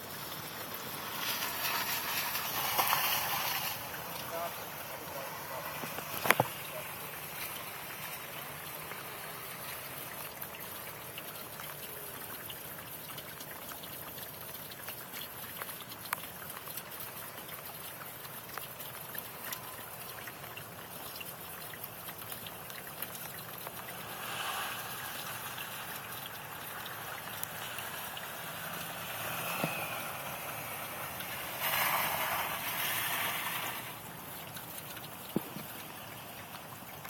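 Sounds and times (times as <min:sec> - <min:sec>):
snowstorm hiss: 0:00.8 - 0:05.9, 0:29.3 - 0:34.0
small ticks of sleet striking: 0:01.2 - 0:04.3.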